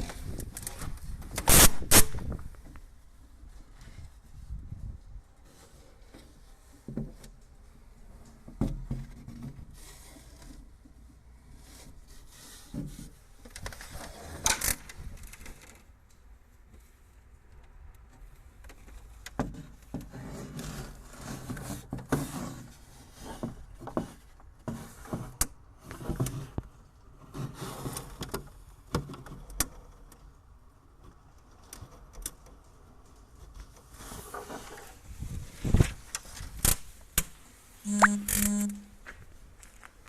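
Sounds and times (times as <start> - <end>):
short buzzing tone: 37.9 - 39.0.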